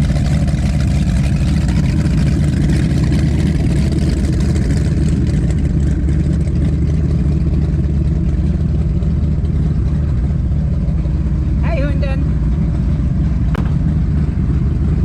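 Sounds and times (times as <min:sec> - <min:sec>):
boat engines idling: 0:00.0 - 0:15.0.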